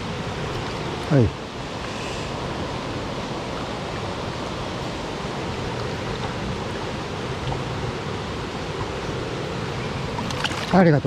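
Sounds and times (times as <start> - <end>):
stream water rushing over rocks: 2.4 - 11.0.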